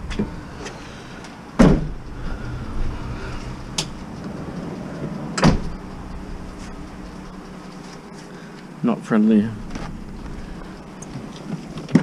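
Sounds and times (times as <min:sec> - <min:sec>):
vehicle engine idling: 0:00.0 - 0:12.0
loud thud: 0:01.6 - 0:02.2, 0:05.4 - 0:05.9.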